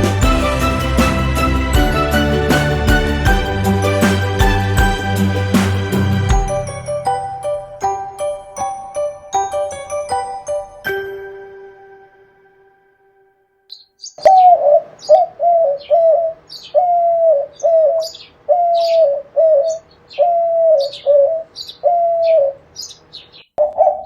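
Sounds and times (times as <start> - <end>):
small birds chirping: 13.7 - 24.0
dove cooing: 14.2 - 22.6, 23.6 - 24.0.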